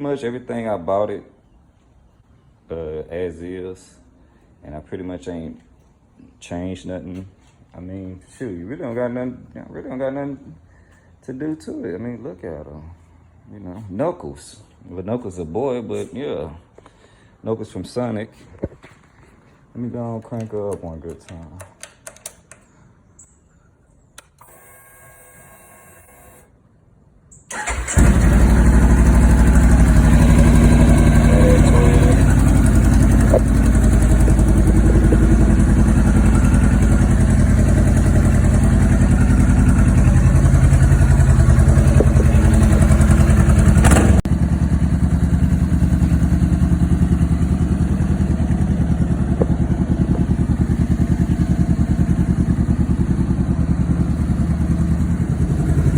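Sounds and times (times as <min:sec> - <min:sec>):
starter motor whir: 0:24.2 - 0:26.5, 0:27.5 - 0:38.1, 0:39.5 - 0:44.3
motorcycle engine idling: 0:27.5 - 0:55.9.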